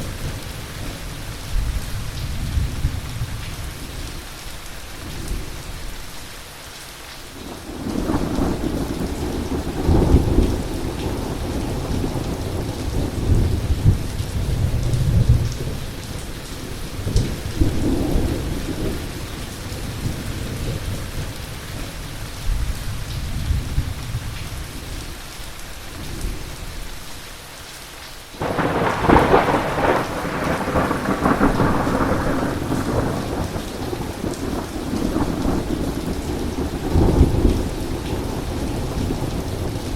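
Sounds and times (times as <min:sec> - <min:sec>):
heavy rain: 0:00.0 - 0:39.9
thunder rumbling: 0:07.6 - 0:16.0, 0:28.4 - 0:39.9
loud thunderclap: 0:28.4 - 0:39.8.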